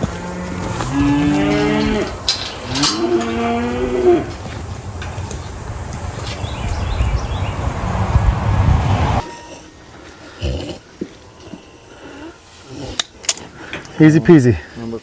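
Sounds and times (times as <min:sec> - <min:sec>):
cow mooing: 0:00.0 - 0:04.5.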